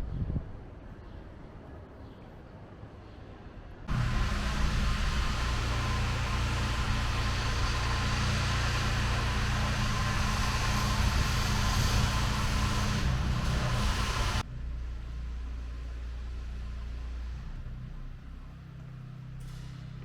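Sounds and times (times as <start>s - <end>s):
road and wind noise: 2.6s - 20.0s
car engine humming: 3.9s - 14.4s.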